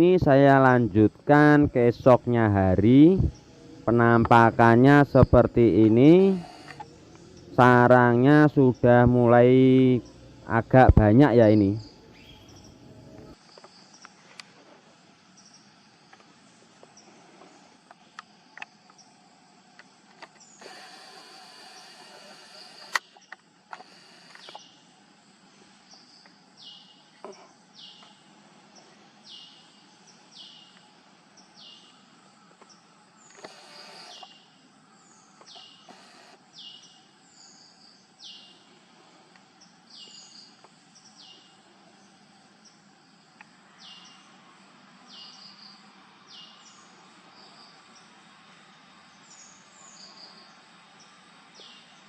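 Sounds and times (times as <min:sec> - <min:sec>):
outdoor hiss: 0:00.0 - 0:52.0
faint bird calls: 0:20.3 - 0:24.9, 0:25.7 - 0:48.1.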